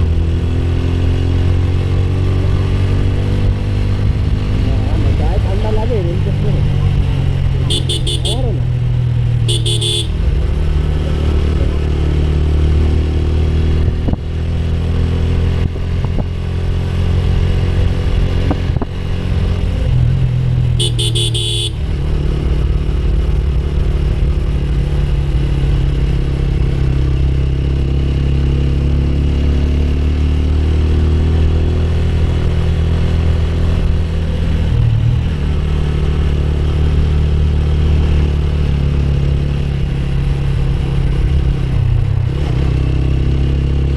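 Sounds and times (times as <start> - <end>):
motorcycle engine running: 0.0 - 43.9
horn: 7.6 - 8.6, 9.5 - 10.2, 20.8 - 21.9.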